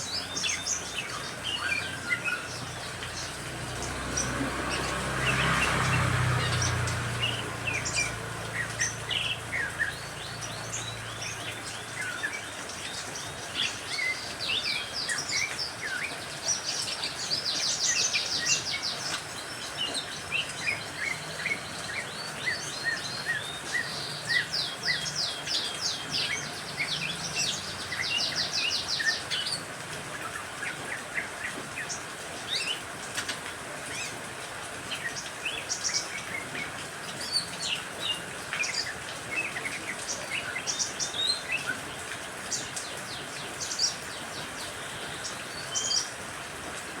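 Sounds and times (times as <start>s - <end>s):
songbirds chirping and trilling: 0.0s - 47.0s.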